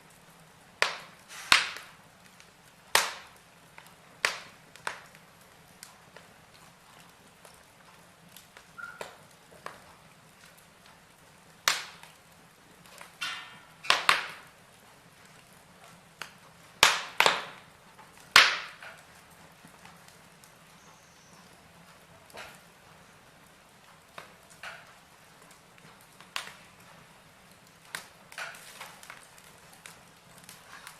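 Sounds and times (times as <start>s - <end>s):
log fire crackling and popping: 0.0s - 30.9s.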